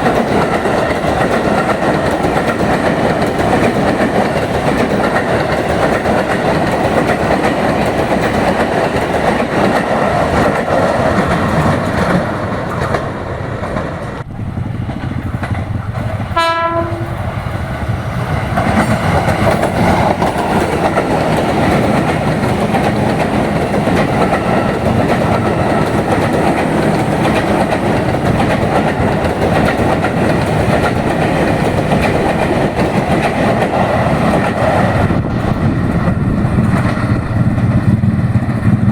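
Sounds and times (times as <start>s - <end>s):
train wheels rumbling on rails: 0.0s - 38.9s
train horn blast: 16.3s - 17.4s.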